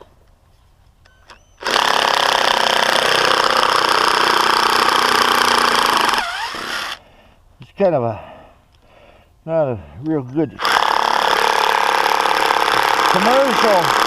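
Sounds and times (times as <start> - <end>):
cordless drill running under load: 1.3 - 7.0, 10.6 - 14.0.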